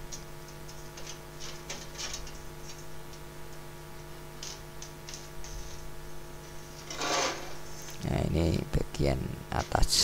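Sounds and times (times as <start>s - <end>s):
electrical hum: 0.0s - 10.0s
short scrapes: 6.8s - 7.9s.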